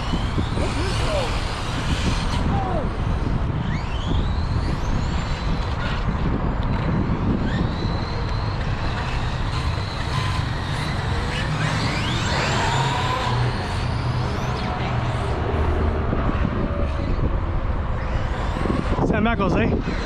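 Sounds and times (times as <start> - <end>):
toy truck motor whine: 0.0 - 2.9, 7.3 - 15.7
tyre and wind rumble: 0.0 - 20.0.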